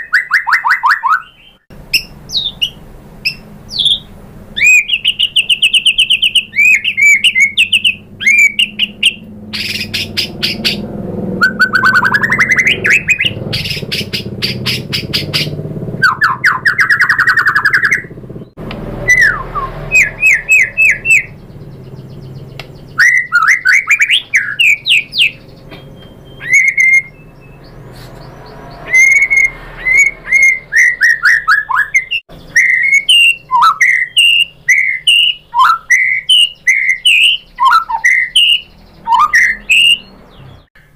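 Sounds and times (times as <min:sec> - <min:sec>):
songbird whistled song: 0:00.0 - 0:40.9.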